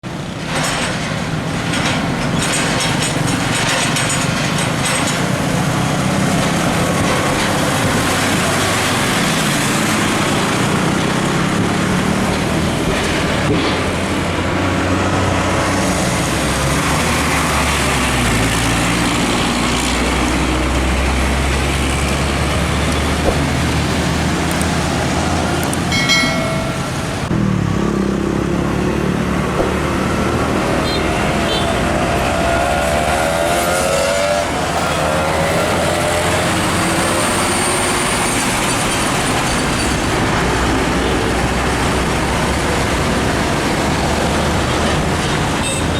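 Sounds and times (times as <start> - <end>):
diesel trucks passing: 0.0 - 45.9
tyre and traffic noise: 0.0 - 45.9
truck horn: 30.8 - 32.0, 34.8 - 35.8.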